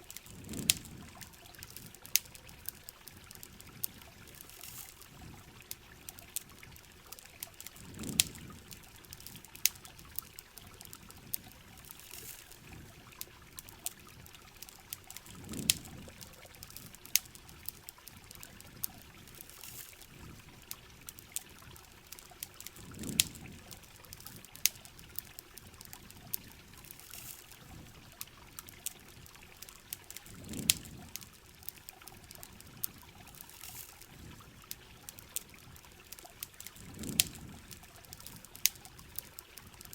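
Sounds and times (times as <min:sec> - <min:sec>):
campfire crackling and popping: 0:00.0 - 0:39.9
running water trickling: 0:00.0 - 0:39.9.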